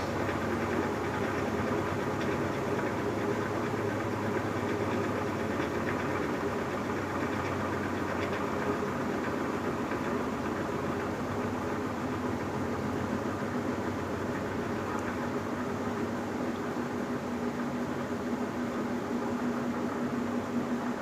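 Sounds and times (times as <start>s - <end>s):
washing machine humming and whirring: 0.0s - 21.0s.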